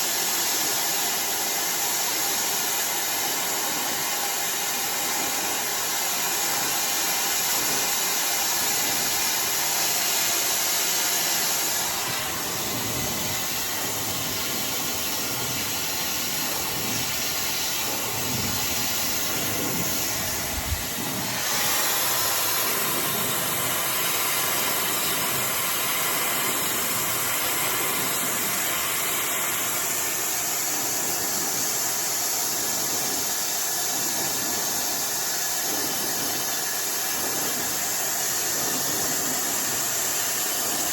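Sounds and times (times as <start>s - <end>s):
hair dryer blowing: 0.0s - 40.9s.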